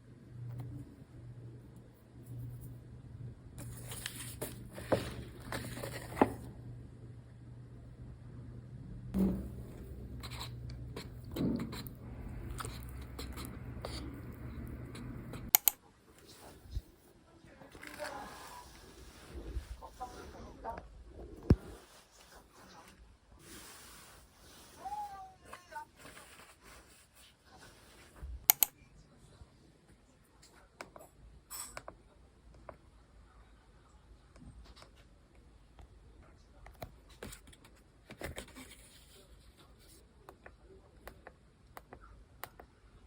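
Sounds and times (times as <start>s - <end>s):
low room hum: 0.0s - 43.0s
small clicks and taps: 15.5s - 15.8s, 28.5s - 28.7s.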